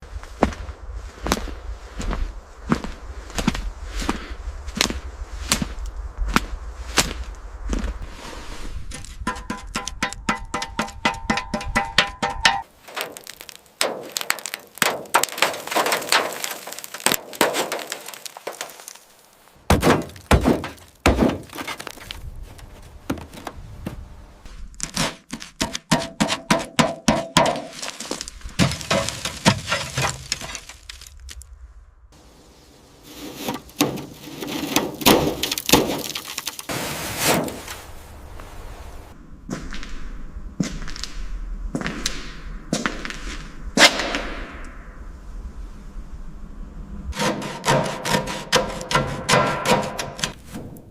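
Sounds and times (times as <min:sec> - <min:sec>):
tools knocking on metal: 0:09.3 - 0:12.6.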